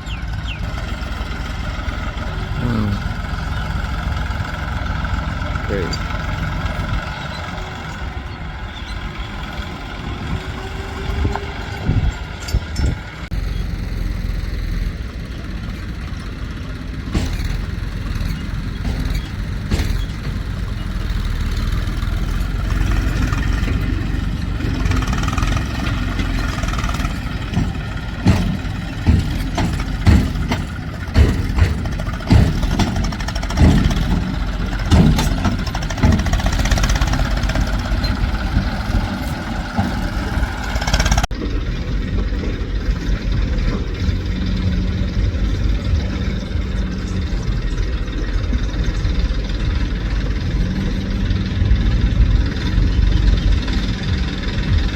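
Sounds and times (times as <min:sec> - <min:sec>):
diesel engine running: 0:00.0 - 0:54.9
irregular thumps and knocks: 0:16.3 - 0:41.3.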